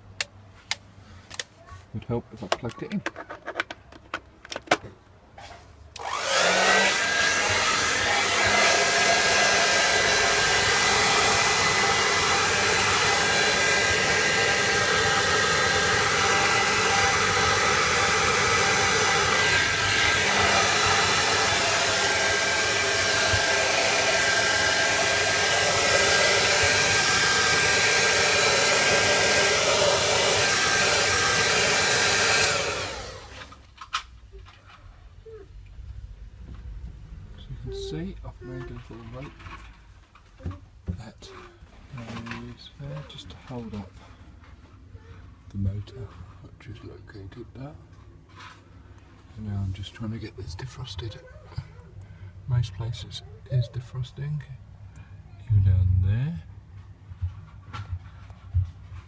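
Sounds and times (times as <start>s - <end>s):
hot-air blower motor whine: 6.0s - 33.5s.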